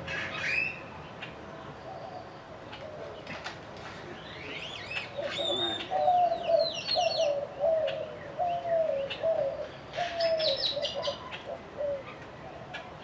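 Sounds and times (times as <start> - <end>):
dove cooing: 5.1 - 13.0.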